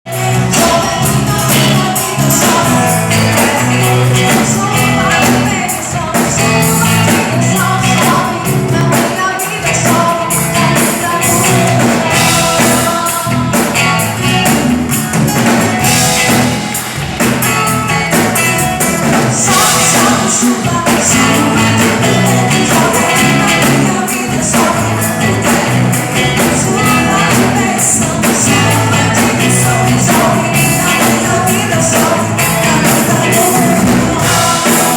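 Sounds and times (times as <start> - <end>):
people singing: 0.1 - 34.9
worship band playing gospel song: 0.1 - 34.9.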